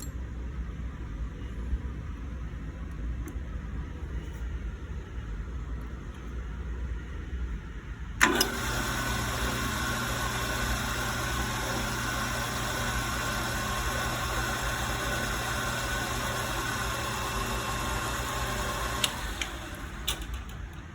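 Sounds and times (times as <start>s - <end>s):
lathe switch click: 8.2s - 8.7s, 18.9s - 20.5s
lathe motor running with whine: 8.2s - 20.6s.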